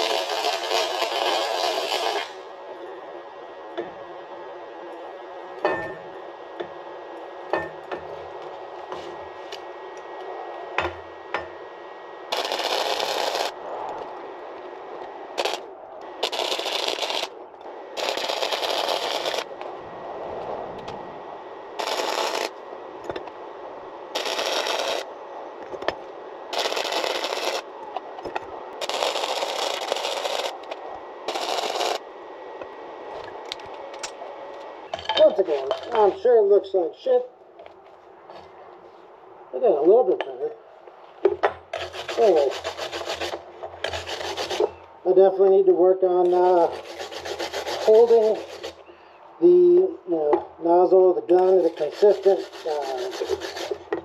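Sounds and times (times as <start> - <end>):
welding arc crackling: 0.0 - 2.5, 12.2 - 19.8, 21.7 - 23.4, 24.0 - 32.1.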